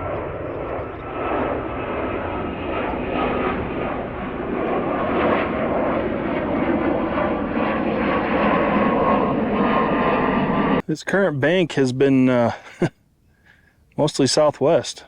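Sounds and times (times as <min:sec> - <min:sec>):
jet airliner taking off: 0:00.0 - 0:10.8.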